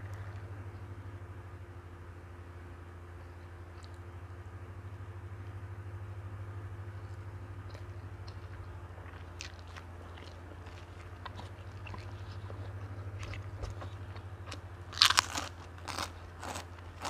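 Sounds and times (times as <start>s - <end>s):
person chewing crunchy food: 7.0s - 17.0s
loud crunches: 7.1s - 17.0s.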